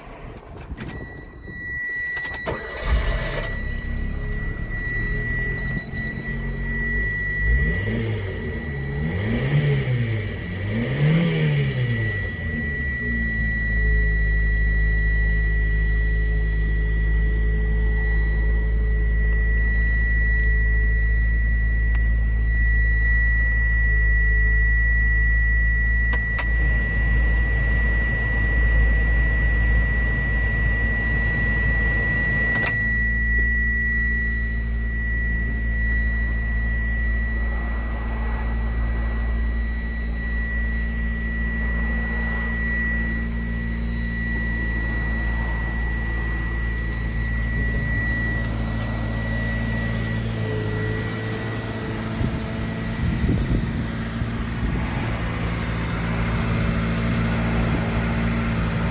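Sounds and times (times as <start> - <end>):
truck engine idling: 0.0 - 9.0, 33.3 - 58.9
thin high tone: 0.8 - 7.6, 32.6 - 58.9.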